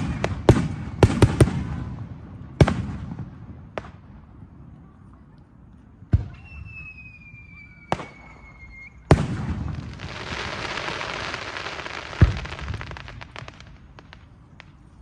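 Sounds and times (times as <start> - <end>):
high falling whistle: 6.3 - 9.1
fireworks crackling hiss: 6.4 - 15.0.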